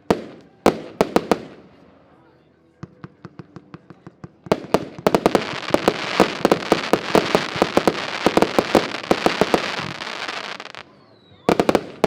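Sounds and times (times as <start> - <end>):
rapid firework bangs: 4.2 - 10.8.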